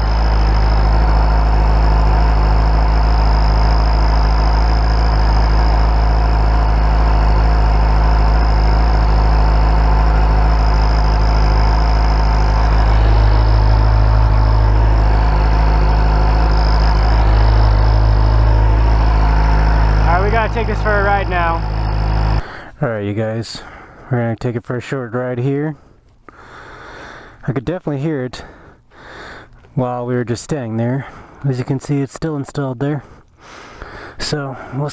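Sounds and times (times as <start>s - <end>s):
high-pitched exhaust whistle: 0.0s - 22.4s
motorcycle engine idling: 0.0s - 22.7s.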